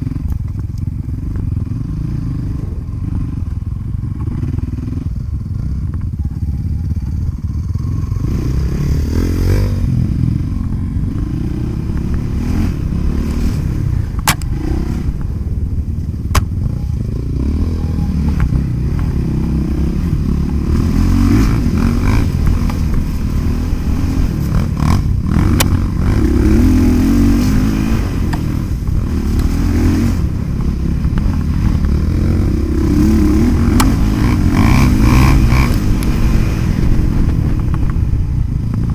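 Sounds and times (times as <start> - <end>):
motocross engines revving: 7.8 - 15.8, 16.8 - 38.0.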